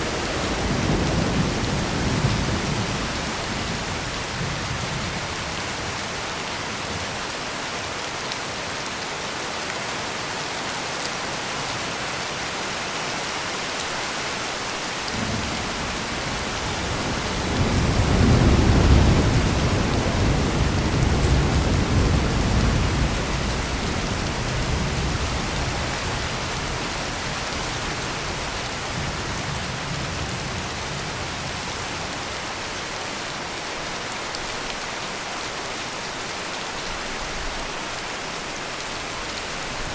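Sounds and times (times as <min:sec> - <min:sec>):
heavy rain: 0:00.0 - 0:39.9
thunder rumbling: 0:15.2 - 0:31.8.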